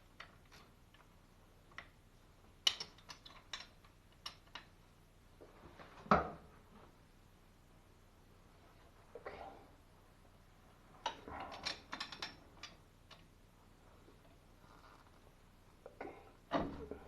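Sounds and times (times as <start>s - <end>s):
metallic clicks of plumbing fittings: 0.0s - 4.8s, 11.0s - 13.3s.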